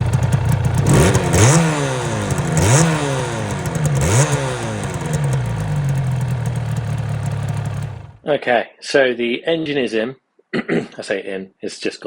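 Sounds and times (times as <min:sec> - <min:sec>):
motorcycle engine idling and revving: 0:00.0 - 0:08.2.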